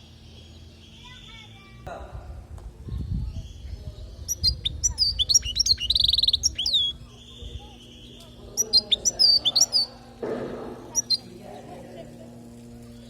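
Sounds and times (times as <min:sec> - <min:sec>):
goldfinch twittering song: 0:03.3 - 0:09.9, 0:10.9 - 0:11.3.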